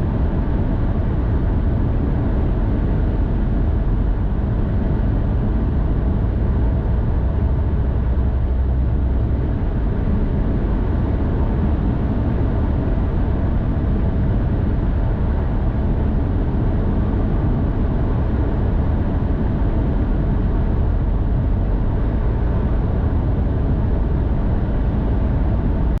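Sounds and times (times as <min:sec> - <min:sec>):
faint steady hum: 0:00.0 - 0:26.0
vehicle road rumble: 0:00.0 - 0:26.0.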